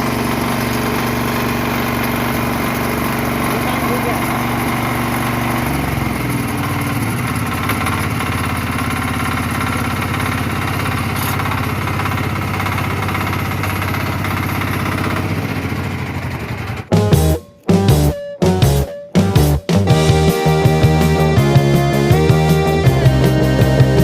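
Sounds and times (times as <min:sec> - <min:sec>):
power weeder engine running: 0:00.0 - 0:18.8, 0:19.4 - 0:24.0.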